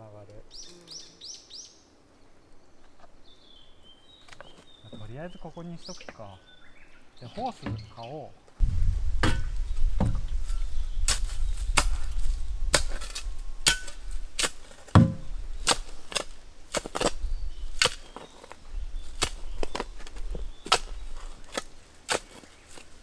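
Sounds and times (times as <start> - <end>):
low rumble: 8.6 - 14.4
hand tool striking: 9.2 - 23.0.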